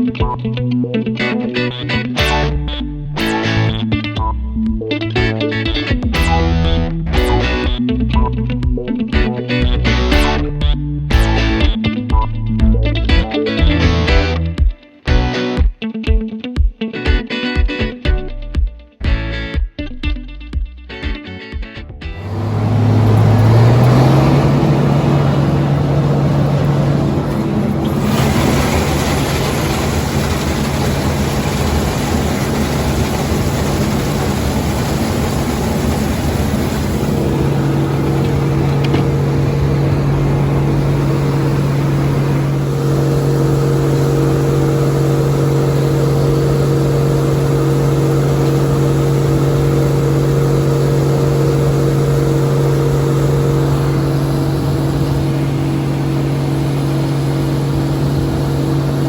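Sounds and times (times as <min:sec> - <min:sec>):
combine harvester running: 0:22.2 - 0:59.0.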